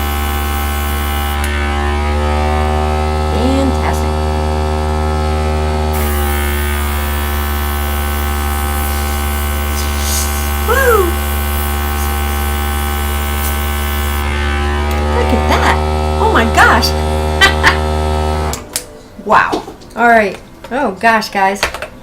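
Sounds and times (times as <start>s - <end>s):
air gun hissing: 0.0s - 1.5s, 5.8s - 14.3s
compressor humming: 0.0s - 20.9s
short voice-like sound: 10.6s - 11.2s.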